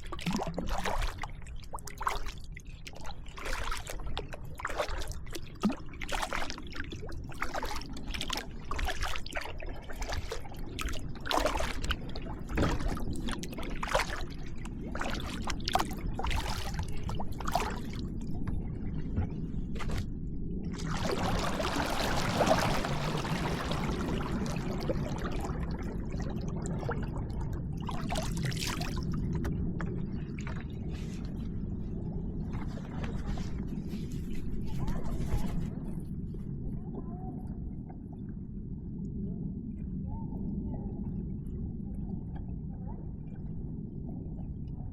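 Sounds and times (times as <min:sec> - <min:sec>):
paddle splashing and dripping: 0:00.0 - 0:31.2
rush of water: 0:20.7 - 0:31.2.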